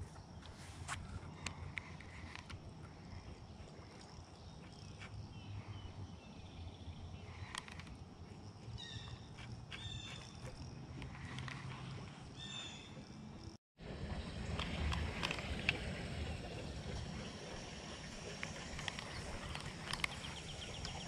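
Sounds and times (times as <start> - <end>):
bird chirping: 2.9 - 13.6, 16.2 - 21.0.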